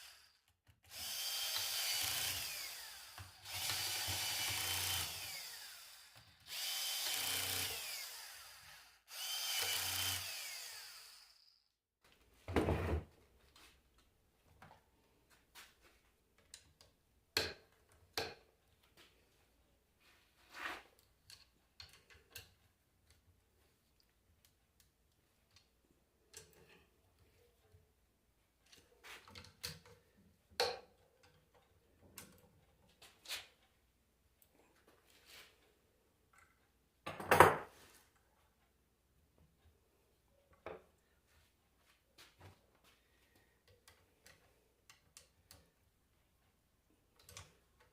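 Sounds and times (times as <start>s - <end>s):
power drill whining: 0.0s - 11.7s.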